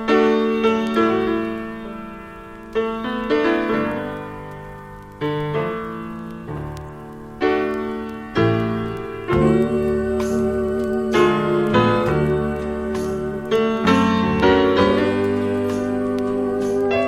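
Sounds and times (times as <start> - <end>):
gospel piano chords: 0.0 - 17.0.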